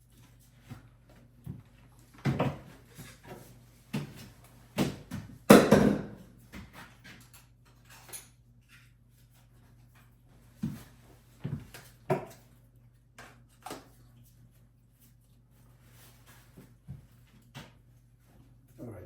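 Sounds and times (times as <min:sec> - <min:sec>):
hard objects knocking and clunking: 0:04.8 - 0:06.2.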